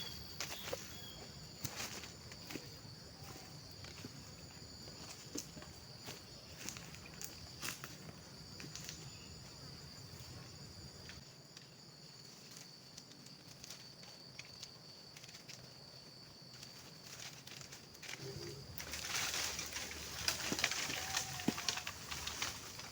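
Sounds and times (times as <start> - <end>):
insects droning: 0.0 - 22.9
faint clicks and crackles: 16.5 - 22.9.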